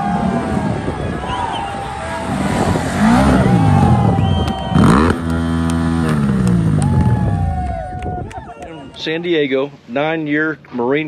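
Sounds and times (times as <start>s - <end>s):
motorcycle engines revving: 0.0s - 8.0s
loud engine burst: 1.6s - 7.4s.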